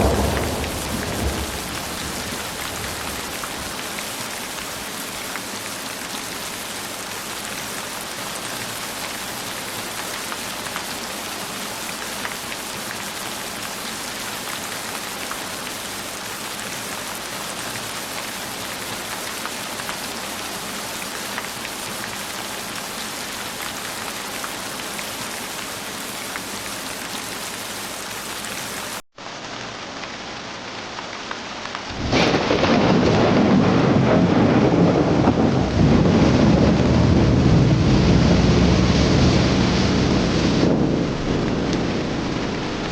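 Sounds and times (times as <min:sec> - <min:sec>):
deep rumble of thunder: 0:00.0 - 0:03.8, 0:31.9 - 0:42.9
heavy rain falling: 0:00.0 - 0:42.9.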